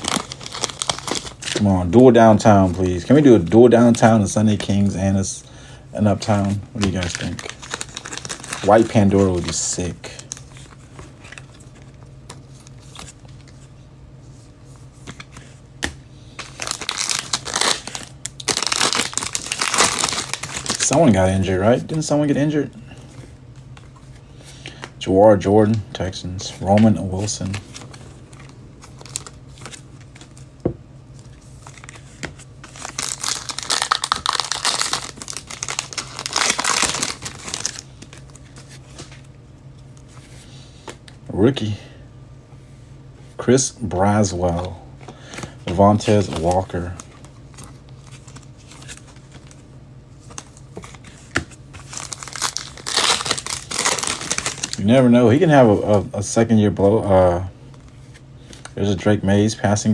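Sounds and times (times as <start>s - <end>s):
wrapper crinkling and tearing: 0.0s - 3.1s, 6.3s - 11.6s, 16.4s - 21.2s, 27.4s - 30.4s, 32.6s - 39.1s, 51.8s - 54.9s
low steady hum: 0.0s - 59.9s.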